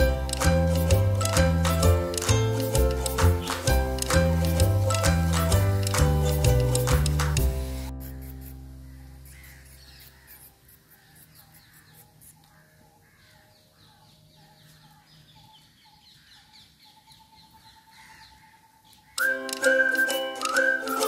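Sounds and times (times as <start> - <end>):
background music: 0.0 - 9.4, 19.2 - 21.0
faint birds calling: 8.0 - 21.0.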